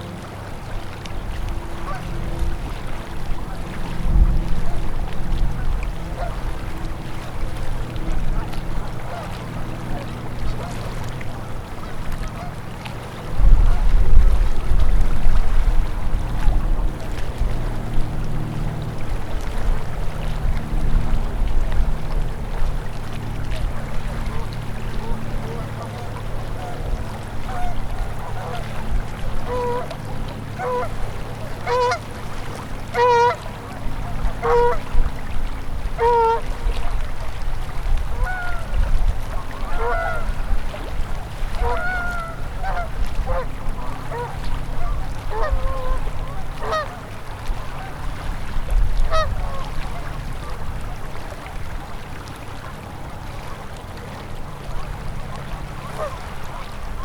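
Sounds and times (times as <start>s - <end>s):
river water flowing: 0.0s - 57.0s
geese honking: 1.8s - 2.2s, 7.6s - 11.6s, 24.2s - 28.7s, 29.4s - 30.0s, 30.6s - 31.0s, 31.6s - 32.0s, 32.9s - 34.8s, 36.0s - 36.5s, 38.2s - 38.7s, 39.3s - 40.4s, 41.5s - 47.0s, 49.1s - 50.6s, 55.8s - 57.0s.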